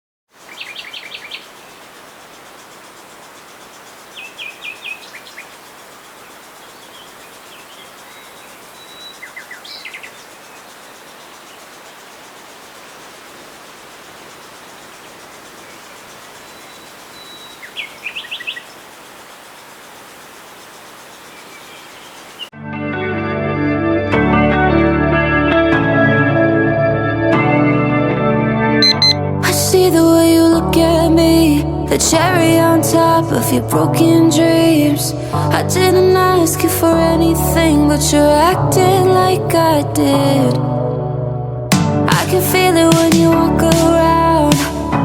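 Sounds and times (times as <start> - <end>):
small birds chirping: 0.3 - 22.5, 28.8 - 29.2
steady background hiss: 0.4 - 22.5.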